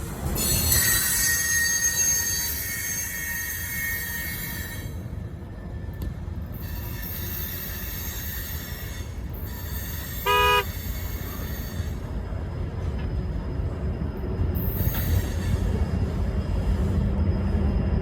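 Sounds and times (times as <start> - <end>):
short horn honk: 10.3 - 10.7.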